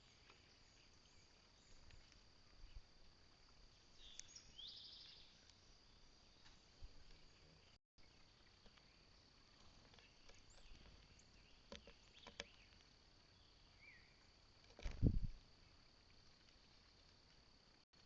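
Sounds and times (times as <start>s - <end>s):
faint bird chirps: 0.0s - 17.5s.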